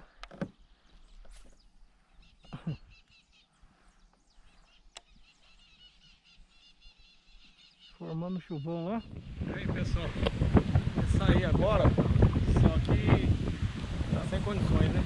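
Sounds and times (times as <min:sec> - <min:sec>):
high repeated bird chirps: 0:02.2 - 0:09.4.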